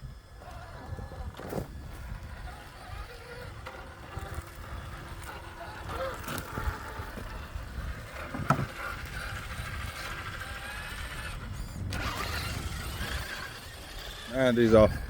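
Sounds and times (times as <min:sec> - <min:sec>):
rc car motor whining: 0:00.0 - 0:15.0
wind rumble on microphone: 0:00.0 - 0:15.0.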